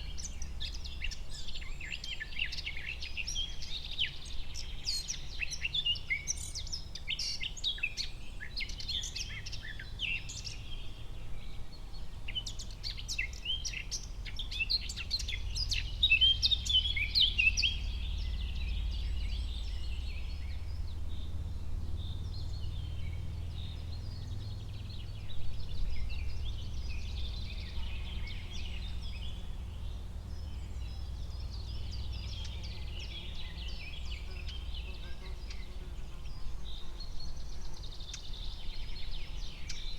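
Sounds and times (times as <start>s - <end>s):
birds chirping and singing: 0.0s - 39.9s
steady low rumble: 14.1s - 33.0s.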